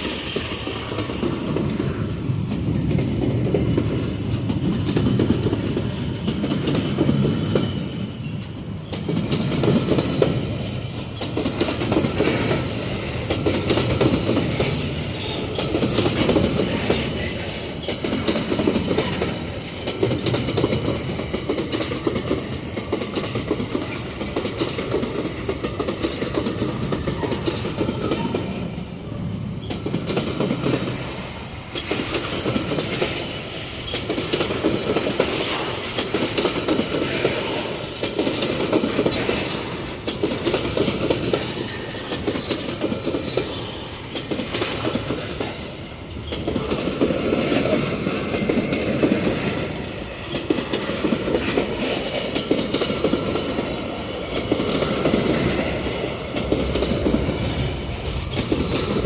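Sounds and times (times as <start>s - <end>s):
train wheels clicking over rail joints: 0.0s - 28.8s, 29.5s - 59.0s.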